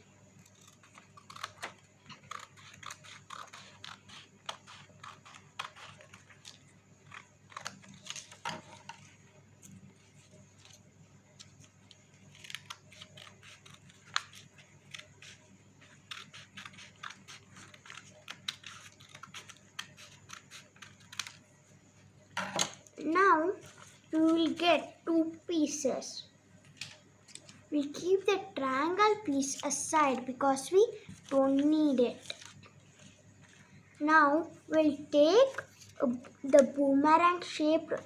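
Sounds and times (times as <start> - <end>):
paper being cut: 0.6 - 8.3.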